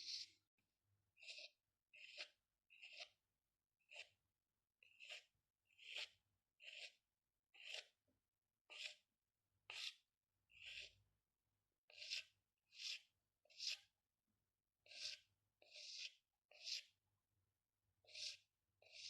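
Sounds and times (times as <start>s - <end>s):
pen scratching on paper: 0.0s - 0.4s, 1.2s - 4.2s, 4.8s - 8.0s, 8.7s - 9.1s, 9.7s - 11.0s, 11.9s - 14.0s, 14.8s - 17.0s, 18.0s - 19.0s.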